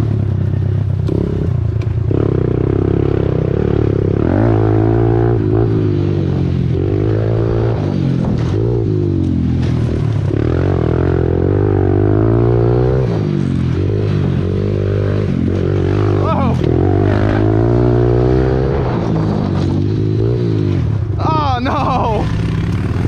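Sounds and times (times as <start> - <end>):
pit bike engine revving: 0.0 - 23.0.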